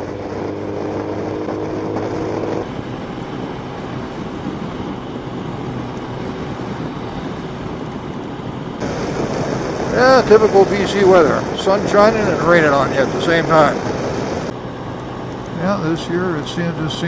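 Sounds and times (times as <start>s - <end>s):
motorcycle engine running: 0.0s - 6.2s
wind rushing: 0.4s - 14.6s
heavy rain: 8.8s - 14.5s.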